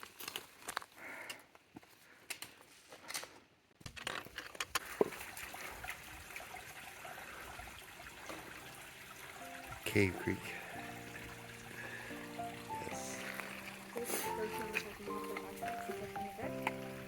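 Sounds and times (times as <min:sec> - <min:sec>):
flowing creek rushing: 0:05.0 - 0:17.0
footsteps on trail: 0:12.8 - 0:16.9.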